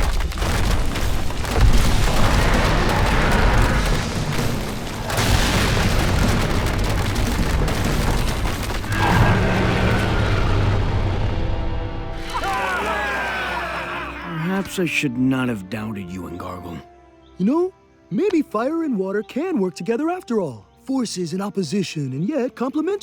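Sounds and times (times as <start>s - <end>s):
heavy booming: 0.0s - 12.2s
dramatic background music: 0.0s - 23.0s.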